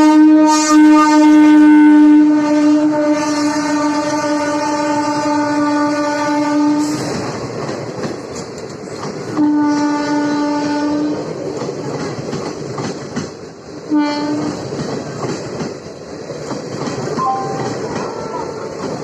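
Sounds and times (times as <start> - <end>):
locomotive horn blasts: 0.0 - 7.0, 9.4 - 11.2, 13.9 - 14.5
train coaches clattering on rails: 3.1 - 19.0.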